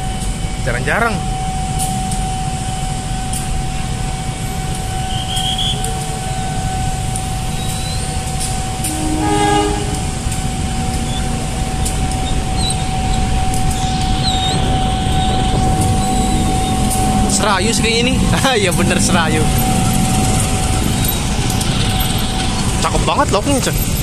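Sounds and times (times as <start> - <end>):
train rumbling: 0.0 - 24.0
level crossing warning tone: 0.9 - 23.0
road traffic rumbling: 2.4 - 24.0
train horn blast: 8.4 - 13.1.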